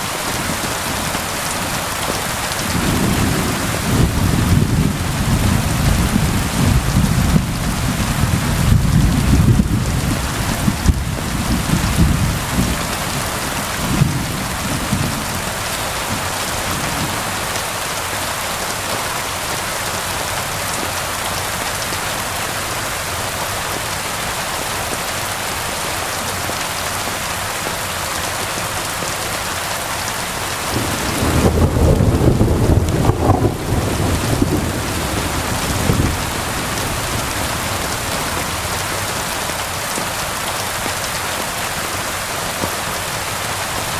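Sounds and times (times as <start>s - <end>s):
heavy rain falling: 0.0s - 43.9s
thunder rumbling: 2.6s - 17.4s, 30.7s - 39.4s.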